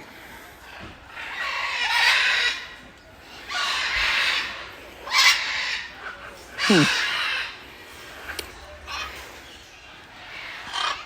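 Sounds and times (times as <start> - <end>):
parrots squawking: 6.6 - 7.5, 10.2 - 11.0.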